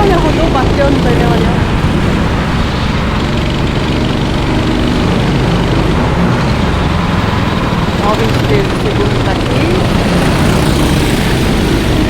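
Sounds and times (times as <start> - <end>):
racing kart engines running: 0.0 - 12.0.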